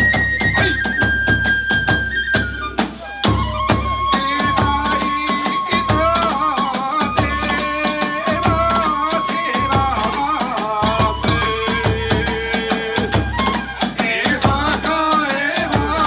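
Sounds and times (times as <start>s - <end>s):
bamboo flute: 0.0s - 16.0s
quick drum beats: 0.0s - 16.0s.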